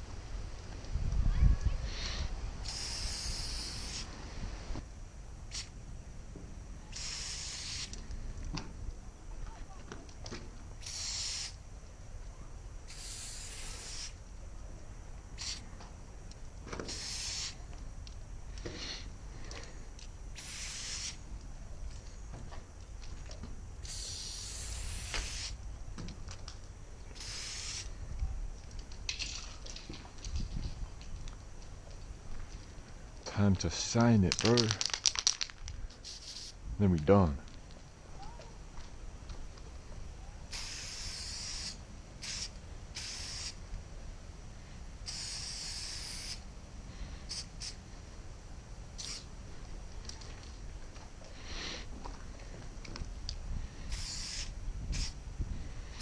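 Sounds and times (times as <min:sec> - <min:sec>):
spray can spraying: 0:02.6 - 0:04.1, 0:06.9 - 0:07.9, 0:10.8 - 0:11.6, 0:12.9 - 0:14.2, 0:15.4 - 0:15.6, 0:16.8 - 0:17.6, 0:20.4 - 0:21.2, 0:23.8 - 0:25.6, 0:27.2 - 0:27.9, 0:34.5 - 0:36.6, 0:40.5 - 0:43.6, 0:45.1 - 0:46.4, 0:47.3 - 0:47.8, 0:49.0 - 0:49.3, 0:53.9 - 0:55.2.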